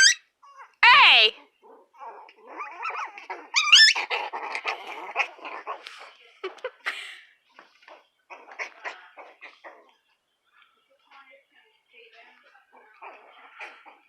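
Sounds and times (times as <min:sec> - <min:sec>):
puppy yelping: 0:00.0 - 0:05.8.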